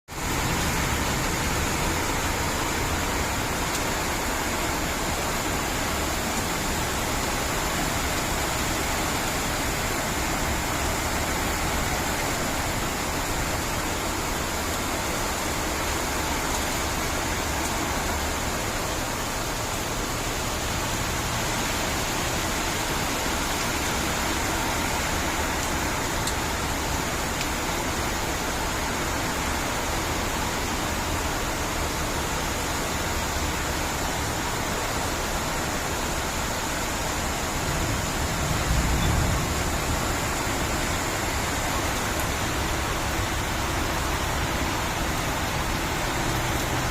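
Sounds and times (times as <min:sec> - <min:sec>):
heavy rain hissing: 0:00.1 - 0:46.9.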